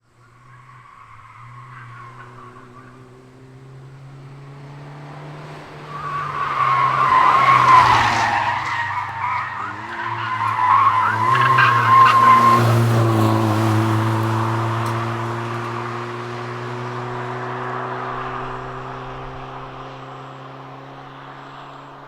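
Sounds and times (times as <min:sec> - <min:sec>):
car engine under load: 0:00.0 - 0:22.0
tyres squealing: 0:05.9 - 0:14.0.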